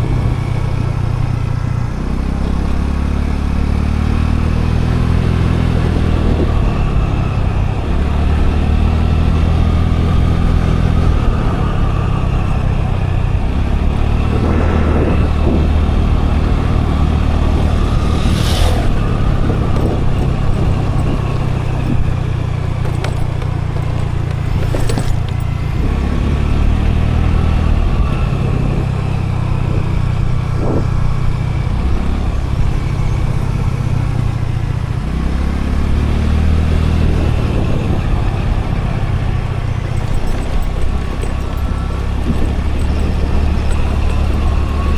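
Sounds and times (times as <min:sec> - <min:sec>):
road and wind noise: 0:00.0 - 0:44.9
scooter engine running: 0:00.0 - 0:44.9
brief sharp noises: 0:17.6 - 0:19.8.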